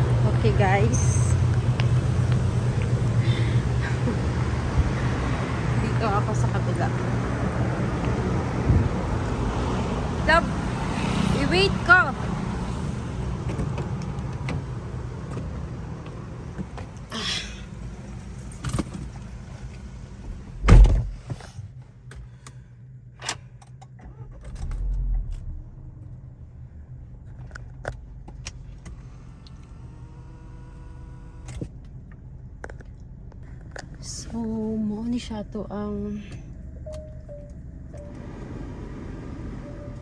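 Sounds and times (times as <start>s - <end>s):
vehicle engine idling: 0.0s - 40.0s
car door slamming: 20.3s - 21.4s.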